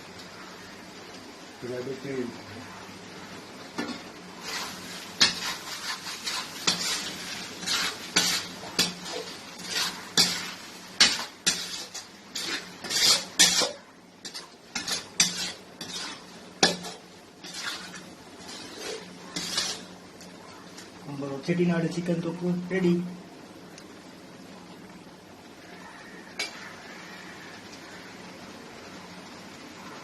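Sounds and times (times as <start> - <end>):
faint steady hum: 0.0 - 30.0
spoon scraping and clinking pan: 3.8 - 19.9.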